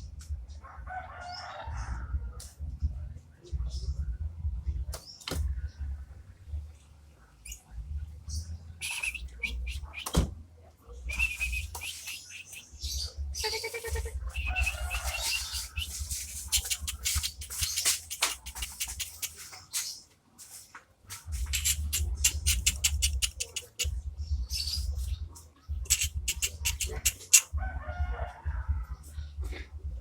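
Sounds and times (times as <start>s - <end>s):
bird singing chips and whistles: 8.8s - 10.2s, 11.1s - 20.0s, 25.9s - 27.4s.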